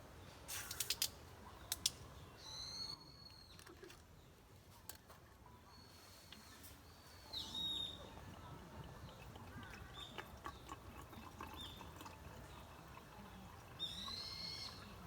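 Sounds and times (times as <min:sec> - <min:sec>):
bird chirps: 0:06.8 - 0:08.1, 0:13.8 - 0:14.9.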